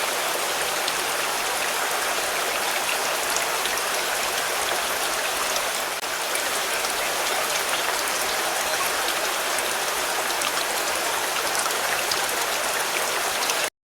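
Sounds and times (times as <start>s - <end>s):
rain falling on a car: 0.0s - 13.7s.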